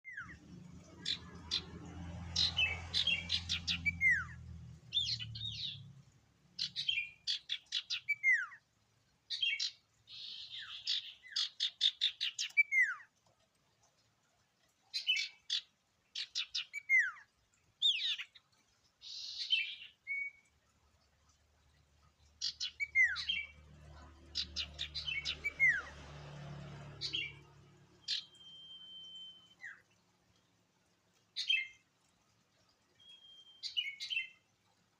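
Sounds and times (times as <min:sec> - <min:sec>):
bird chirping and trilling: 0:00.0 - 0:06.0, 0:06.6 - 0:08.6, 0:09.3 - 0:13.1, 0:14.9 - 0:18.4, 0:19.0 - 0:20.5, 0:22.2 - 0:26.0, 0:26.9 - 0:30.0, 0:31.4 - 0:31.8, 0:33.0 - 0:34.5
bird whistle: 0:28.0 - 0:29.8, 0:33.0 - 0:34.2.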